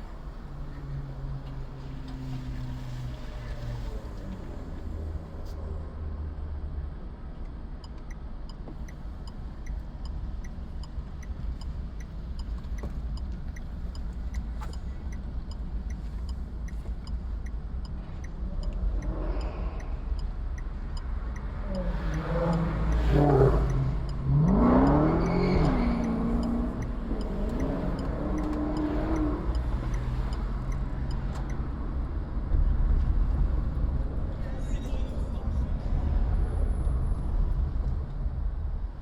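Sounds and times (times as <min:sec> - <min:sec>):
car driving rumble: 0:00.0 - 0:39.0
faint regular ticking: 0:07.4 - 0:35.2
engine revving and accelerating: 0:21.0 - 0:38.1.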